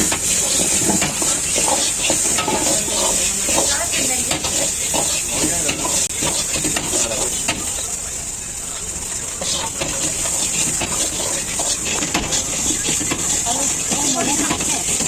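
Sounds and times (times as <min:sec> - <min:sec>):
metal utensils scraping: 0:00.0 - 0:07.9, 0:09.0 - 0:15.0
food sizzling in hot oil: 0:00.0 - 0:15.0.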